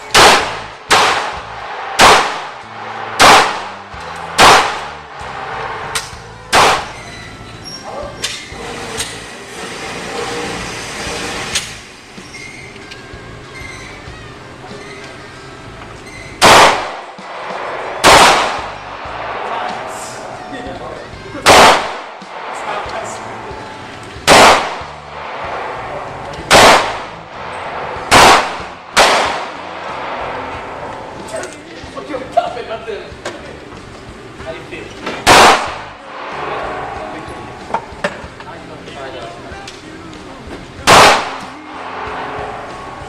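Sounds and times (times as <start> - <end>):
steady rushing noise: 0.0 - 6.9, 16.5 - 33.0, 33.9 - 39.5, 40.2 - 43.0
sharp gunshots: 0.0 - 7.0, 16.4 - 20.2, 21.4 - 23.2, 24.2 - 30.7, 35.2 - 37.0, 40.8 - 42.7.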